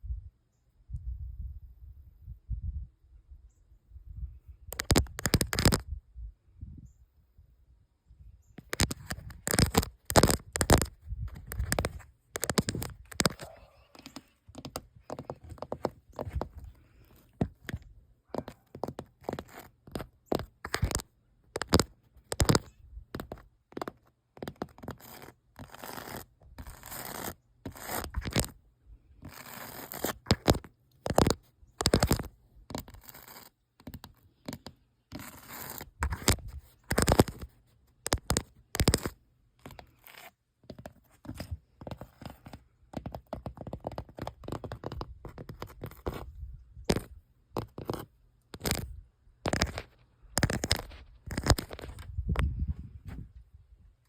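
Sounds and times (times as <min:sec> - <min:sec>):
paint scratching and peeling: 0:04.8 - 0:05.8, 0:08.6 - 0:28.6, 0:29.2 - 0:52.0.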